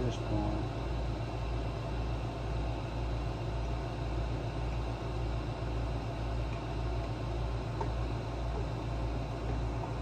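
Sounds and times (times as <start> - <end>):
low pulsing mechanical hum: 0.0 - 10.0.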